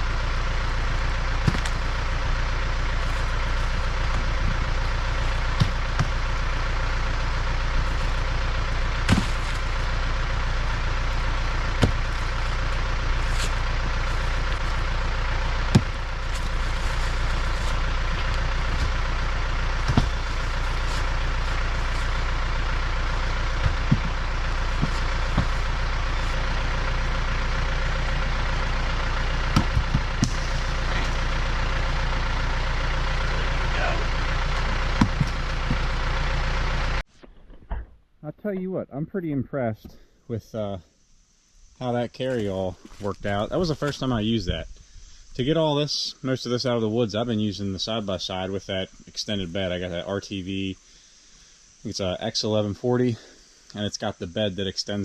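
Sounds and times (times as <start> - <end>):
diesel tractor engine idling: 0.0 - 37.1, 39.2 - 55.0
sharp engine knock: 15.7 - 16.0, 23.6 - 24.2, 29.5 - 30.6, 34.8 - 35.9.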